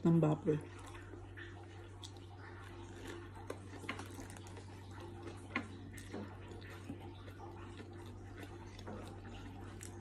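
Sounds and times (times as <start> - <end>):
quiet chewing: 0.6 - 10.0.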